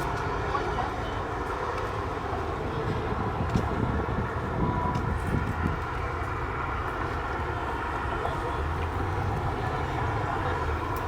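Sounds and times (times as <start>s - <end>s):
wind buffeting microphone: 0.0s - 11.0s
cars driving away: 6.0s - 11.0s.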